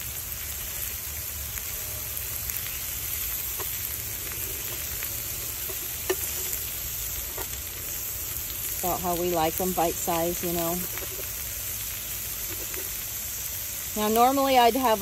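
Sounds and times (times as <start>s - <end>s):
food sizzling in a skillet: 0.0s - 15.0s
metal spatula scraping and tapping: 3.5s - 6.7s, 7.3s - 7.6s, 10.8s - 11.3s, 12.4s - 13.0s.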